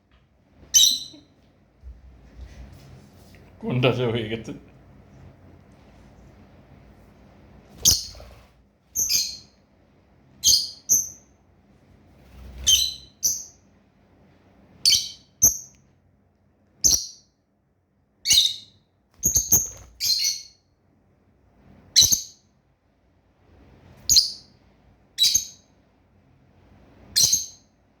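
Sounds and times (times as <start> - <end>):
birds chirping: 0.7 - 1.4, 18.3 - 20.6.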